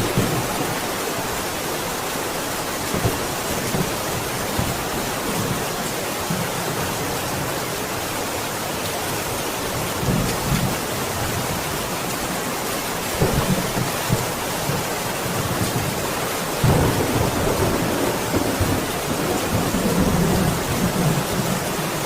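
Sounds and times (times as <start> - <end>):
steady rain falling: 0.0 - 22.0
low rumbles of thunder: 13.2 - 21.7.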